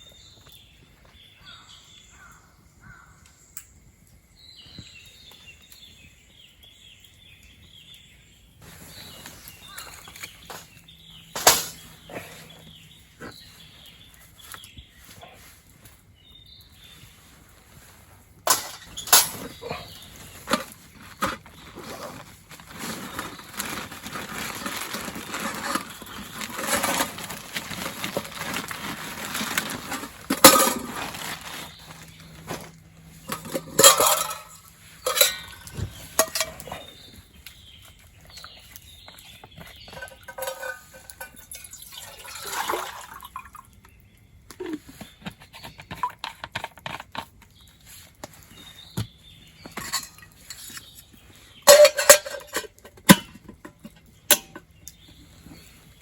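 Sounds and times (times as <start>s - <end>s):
metal cookware clinking: 11.4s - 12.0s, 18.5s - 20.6s, 30.3s - 31.1s, 33.2s - 37.0s, 40.0s - 41.8s, 49.8s - 50.9s, 51.6s - 54.6s
water pouring: 40.0s - 43.8s.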